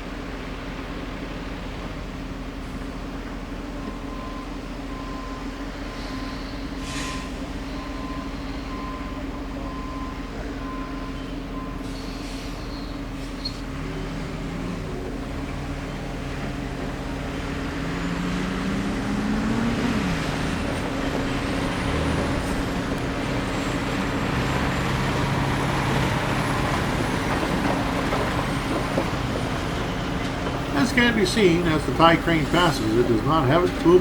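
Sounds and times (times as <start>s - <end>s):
rail equipment engines running: 0.0s - 34.0s.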